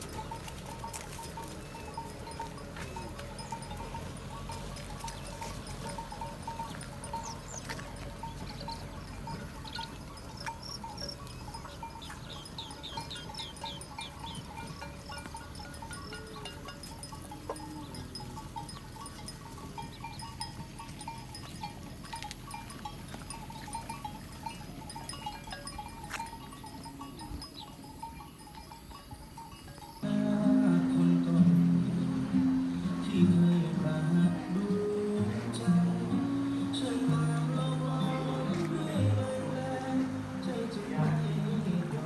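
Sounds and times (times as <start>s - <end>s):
music: 30.0s - 42.0s.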